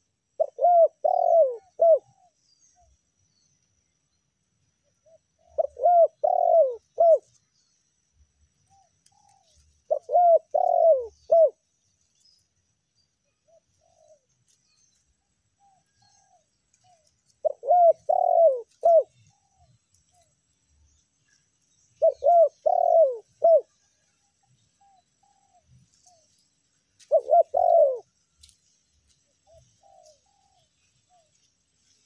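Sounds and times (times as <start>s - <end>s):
dove cooing: 0.0s - 2.4s, 5.0s - 7.4s, 8.7s - 11.6s, 13.4s - 14.3s, 15.6s - 19.7s, 22.0s - 23.8s, 27.0s - 28.1s, 29.4s - 31.3s.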